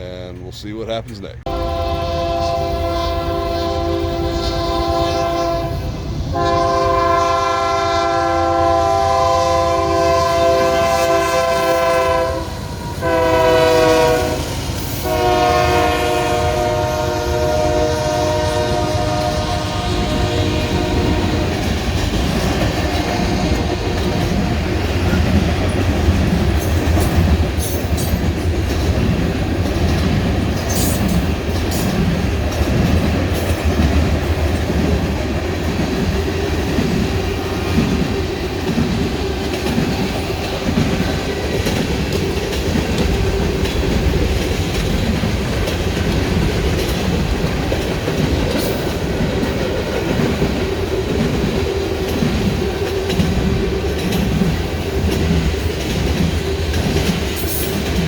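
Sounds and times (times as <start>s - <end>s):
wheel whine on rail: 1.5s - 58.0s
train wheels clicking over rail joints: 18.0s - 58.0s.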